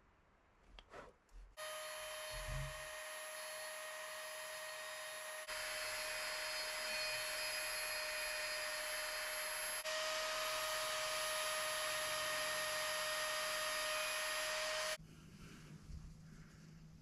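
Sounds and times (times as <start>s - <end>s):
electric rotary tool whining: 1.6s - 15.0s.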